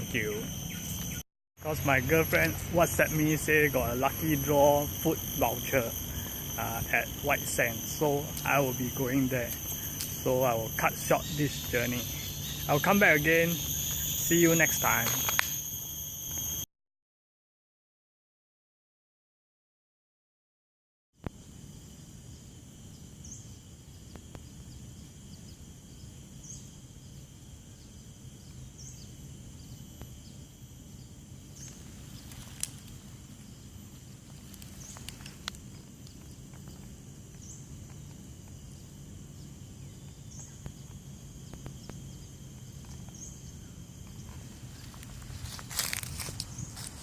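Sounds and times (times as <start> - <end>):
low hum: 0.0 - 16.6
high-pitched insect drone: 0.0 - 16.7, 21.2 - 47.0.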